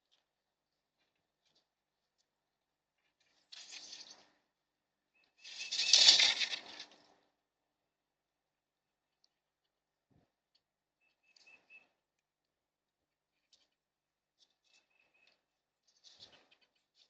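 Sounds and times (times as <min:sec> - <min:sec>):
bird wings flapping: 0:03.3 - 0:04.3, 0:05.4 - 0:07.2.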